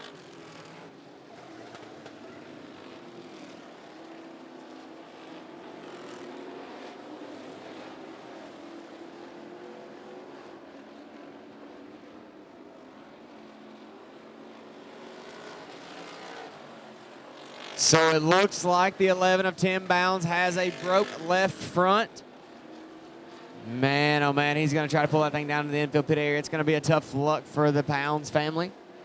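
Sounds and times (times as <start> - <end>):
race car engines droning: 0.0 - 29.0.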